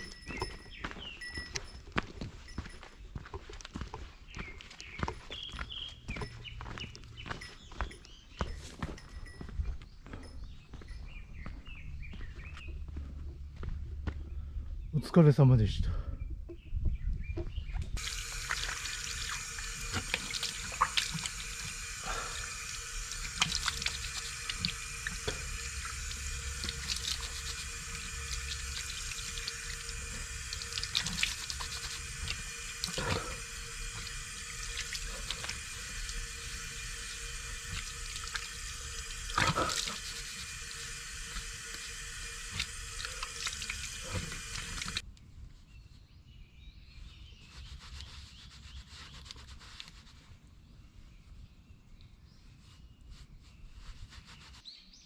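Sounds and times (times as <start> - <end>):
running water splashing: 18.0 - 45.0.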